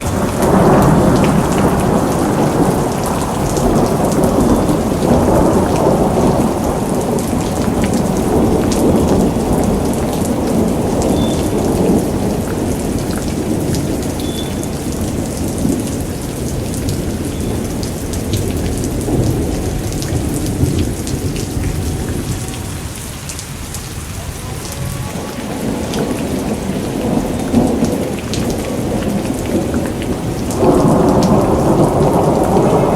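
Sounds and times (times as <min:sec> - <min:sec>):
low rumble of thunder: 0:00.0 - 0:32.9
rain falling: 0:00.0 - 0:32.9.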